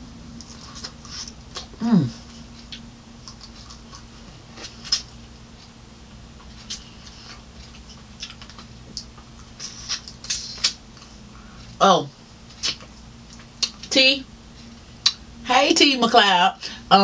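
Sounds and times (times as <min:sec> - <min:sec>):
wet mouth clicks and smacks: 0:09.8 - 0:10.8.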